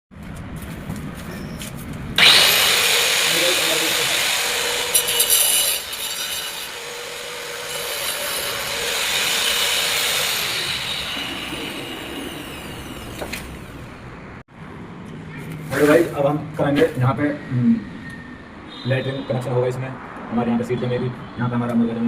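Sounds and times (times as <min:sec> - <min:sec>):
motor whine: 0:02.2 - 0:14.1
power tool grinding: 0:02.2 - 0:14.2.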